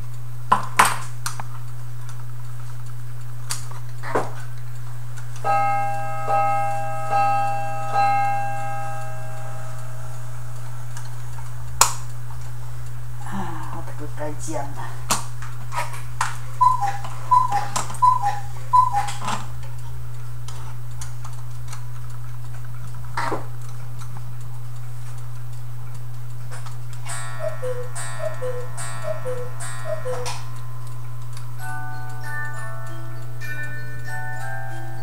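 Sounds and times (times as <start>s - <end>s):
clock ticking: 1.2s - 35.0s
clock two-note chime: 5.4s - 10.9s, 16.6s - 19.2s, 27.0s - 35.0s.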